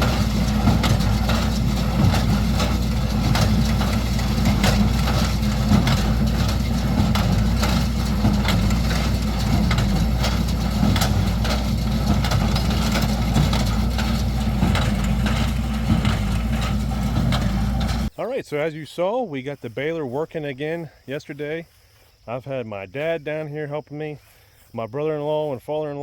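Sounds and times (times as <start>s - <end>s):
baler clacks and knocks: 0.0s - 18.1s
tractor engine running: 0.0s - 18.2s.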